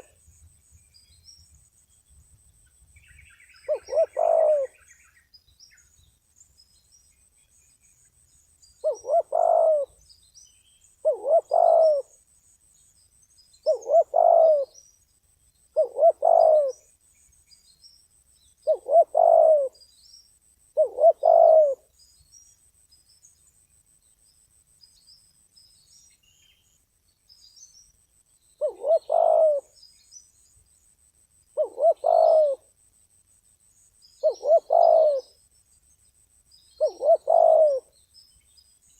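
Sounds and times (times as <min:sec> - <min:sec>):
dove cooing: 0:03.6 - 0:04.8, 0:08.8 - 0:10.0, 0:11.0 - 0:12.2, 0:13.6 - 0:14.8, 0:15.8 - 0:16.9, 0:18.6 - 0:19.8, 0:20.8 - 0:21.9, 0:28.6 - 0:29.8, 0:31.6 - 0:32.7, 0:34.2 - 0:35.3, 0:36.8 - 0:37.9.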